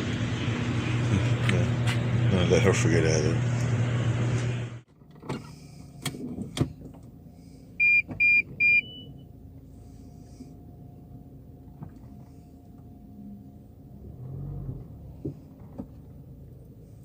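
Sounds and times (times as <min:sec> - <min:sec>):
short electronic beeps: 0:07.8 - 0:09.2.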